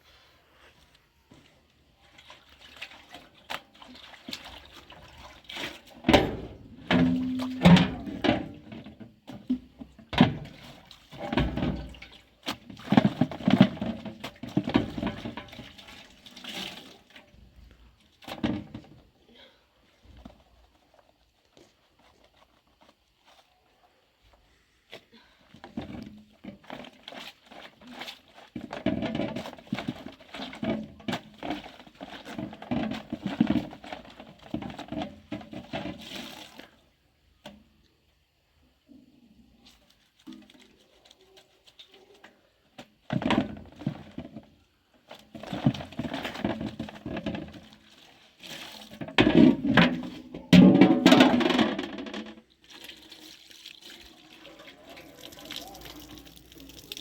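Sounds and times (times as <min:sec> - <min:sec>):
water splashing and pouring: 0:02.1 - 0:08.5, 0:52.5 - 0:57.0.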